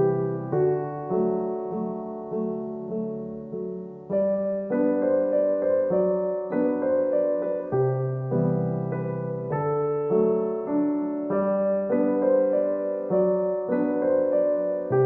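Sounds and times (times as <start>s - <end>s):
gentle solo piano music: 0.0s - 15.0s.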